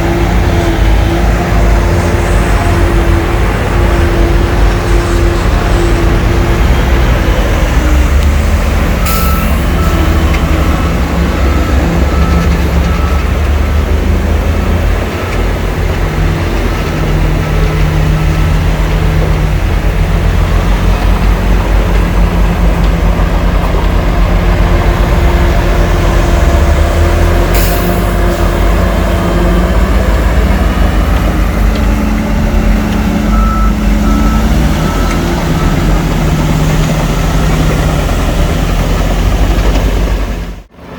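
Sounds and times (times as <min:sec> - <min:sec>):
heavy diesel engines running: 0:00.0 - 0:40.9
reversing alarm beeping: 0:08.8 - 0:14.3, 0:29.5 - 0:38.6.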